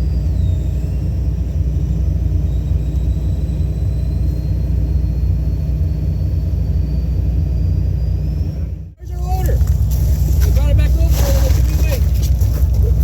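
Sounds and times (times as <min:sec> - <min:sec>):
excavator diesel engine rumbling: 0:00.0 - 0:13.0
faint high whine: 0:00.0 - 0:13.0.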